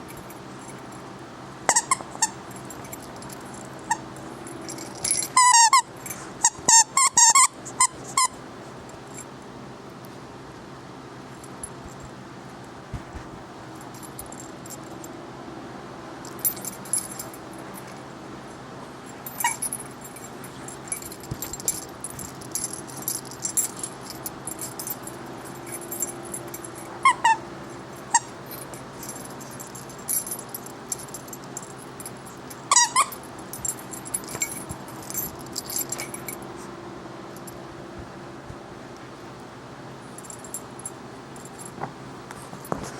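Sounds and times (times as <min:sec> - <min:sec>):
metallic jingling and clattering: 0:00.0 - 0:01.1, 0:01.7 - 0:08.3, 0:16.2 - 0:18.1, 0:19.0 - 0:36.7, 0:40.2 - 0:41.9.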